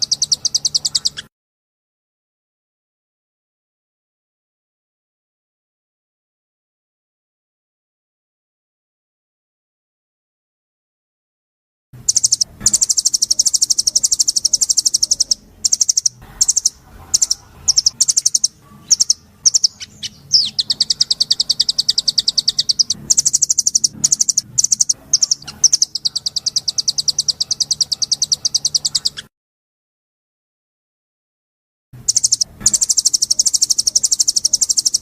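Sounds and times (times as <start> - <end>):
songbird trilling: 0.0 - 1.3, 12.1 - 29.3, 32.0 - 35.0.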